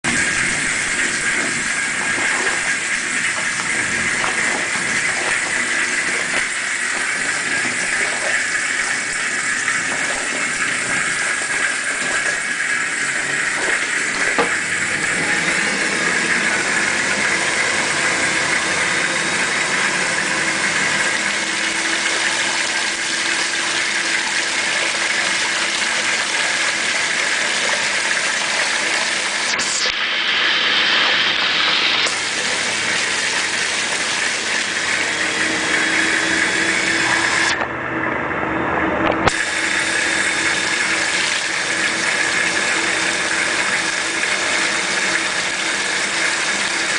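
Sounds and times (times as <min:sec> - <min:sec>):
laundry machine motor hum: 0:00.0 - 0:46.9.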